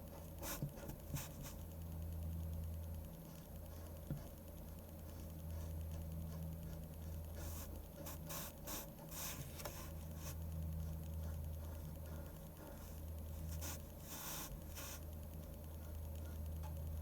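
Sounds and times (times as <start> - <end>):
steady low hum: 0.0 - 17.0
pen scratching on paper: 0.1 - 1.7, 3.3 - 16.7.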